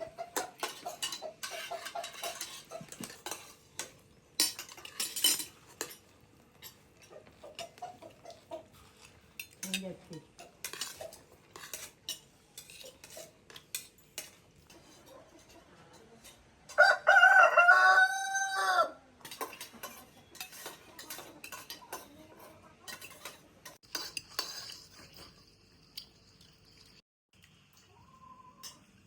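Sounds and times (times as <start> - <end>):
cutlery clinking against dishes: 0.0 - 16.9, 19.2 - 26.1, 28.6 - 29.0
rooster crowing: 16.7 - 19.0.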